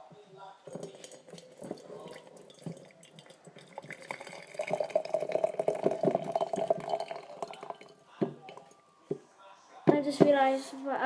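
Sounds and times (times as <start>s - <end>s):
water pouring into a cup: 0.7s - 8.8s.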